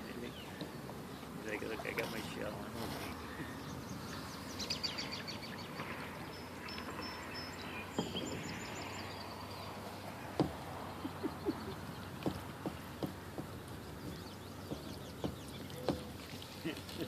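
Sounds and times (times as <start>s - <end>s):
birds chirping and singing: 0.0s - 16.8s
outdoor background hiss: 0.0s - 17.0s
sharp knocks: 10.3s - 10.8s, 12.2s - 16.2s.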